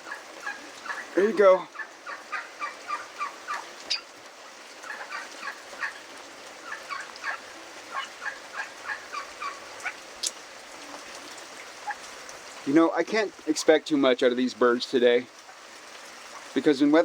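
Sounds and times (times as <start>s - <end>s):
pheasants clucking: 0.0s - 12.3s
rain pattering: 0.0s - 17.0s.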